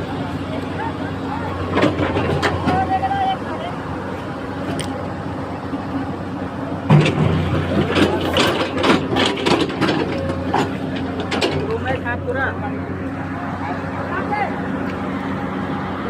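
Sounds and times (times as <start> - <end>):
engine running: 0.0 - 16.0
clattering knocks: 6.9 - 11.9.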